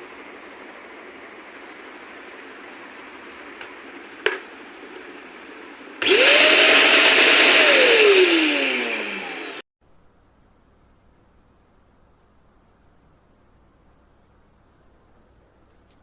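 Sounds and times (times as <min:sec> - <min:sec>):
vacuum cleaner motor whining: 0:00.0 - 0:09.6.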